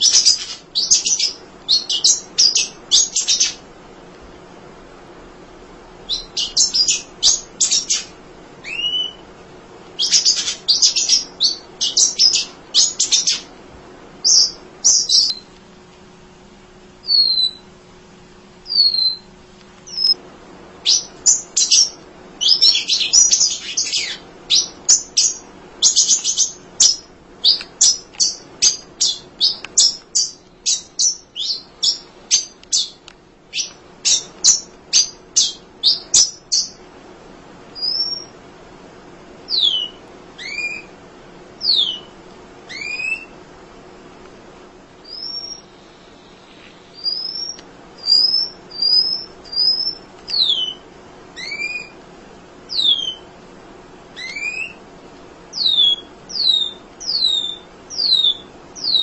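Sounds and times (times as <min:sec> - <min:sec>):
bird chirping: 0:00.0 - 0:03.6, 0:06.1 - 0:09.2, 0:10.0 - 0:13.5, 0:14.2 - 0:15.5, 0:17.0 - 0:17.7, 0:18.6 - 0:20.2, 0:20.8 - 0:36.8, 0:37.8 - 0:38.4, 0:39.5 - 0:40.9, 0:41.6 - 0:42.1, 0:42.7 - 0:43.4, 0:45.0 - 0:50.8, 0:51.4 - 0:52.0, 0:52.7 - 0:53.3, 0:54.2 - 0:54.8, 0:55.5 - 0:59.0
bird whistles: 0:00.0 - 0:03.6, 0:06.1 - 0:09.2, 0:10.0 - 0:13.5, 0:17.0 - 0:17.7, 0:18.7 - 0:19.3, 0:19.9 - 0:20.2, 0:20.8 - 0:36.8, 0:37.8 - 0:38.3, 0:39.5 - 0:40.9, 0:41.6 - 0:42.1, 0:42.7 - 0:43.4, 0:45.0 - 0:45.7, 0:46.3 - 0:50.8, 0:51.4 - 0:52.0, 0:52.7 - 0:53.3, 0:54.2 - 0:54.8, 0:55.5 - 0:59.0.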